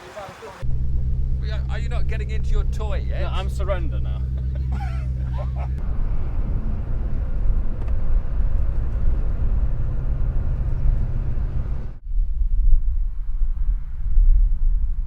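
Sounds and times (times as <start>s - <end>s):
road noise: 0.0s - 12.0s
vehicle engine rumble: 0.0s - 15.0s.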